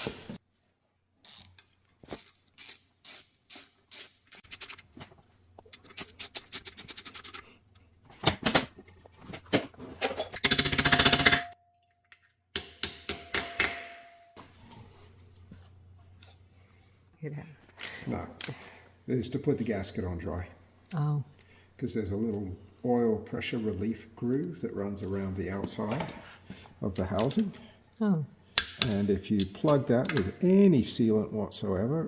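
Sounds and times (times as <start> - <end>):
ratchet wrench clicking: 1.2 - 4.8, 10.4 - 11.5
metal tools knocking: 10.1 - 11.6.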